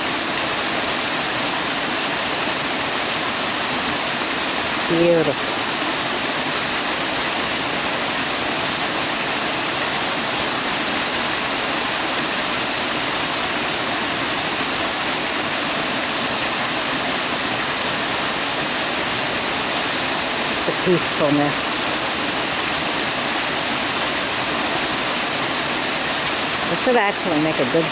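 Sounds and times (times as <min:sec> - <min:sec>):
waterfall rushing: 0:00.0 - 0:27.9.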